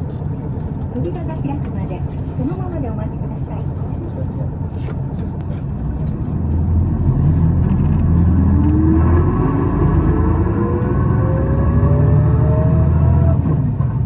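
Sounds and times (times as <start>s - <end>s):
bus diesel engine accelerating: 0.0s - 14.0s
whine rising in pitch: 5.8s - 13.6s.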